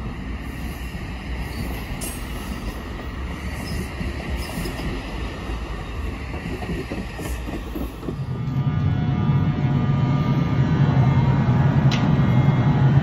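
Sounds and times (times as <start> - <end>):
electric locomotive hum with tones: 0.0 - 13.0
passenger cars rolling on rails: 0.0 - 13.0.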